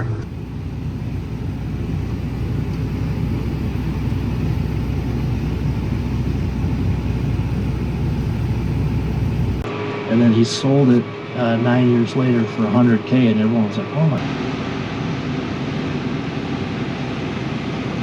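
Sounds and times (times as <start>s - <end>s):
tractor engine rumbling: 0.0s - 9.7s.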